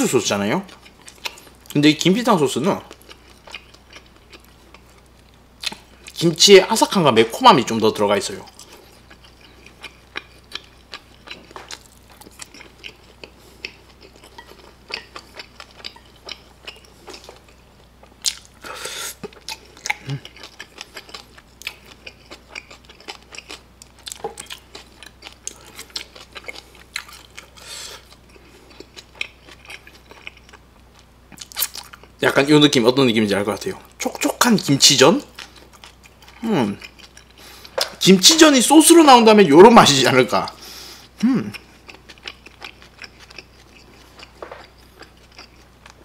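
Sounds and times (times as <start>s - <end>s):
person chewing and biting: 0.7s - 1.8s, 2.9s - 6.2s, 8.4s - 32.2s, 35.2s - 38.2s, 41.4s - 46.0s.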